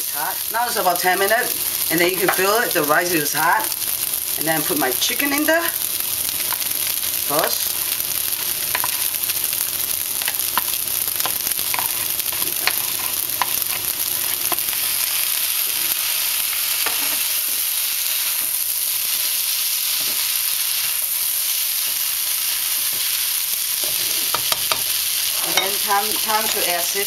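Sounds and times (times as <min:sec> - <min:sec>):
rice sizzling in a wok: 0:00.0 - 0:27.0
spatula scraping and tapping pan: 0:23.8 - 0:26.7.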